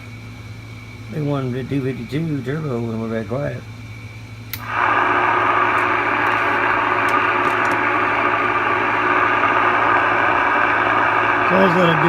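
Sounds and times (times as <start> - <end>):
low steady hum: 0.0 - 12.0
radio static hiss: 4.6 - 12.0.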